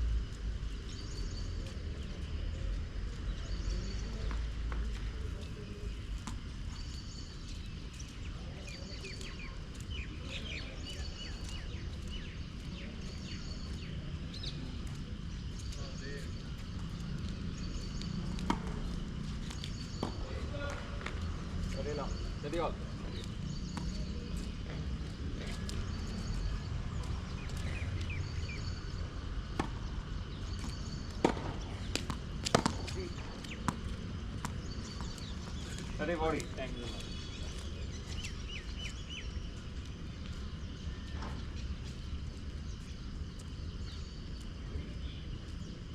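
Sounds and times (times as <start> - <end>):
steady low rumble: 0.0 - 3.2
birds chirping: 0.3 - 45.9
tennis ball hits: 18.5 - 18.9, 30.6 - 35.2.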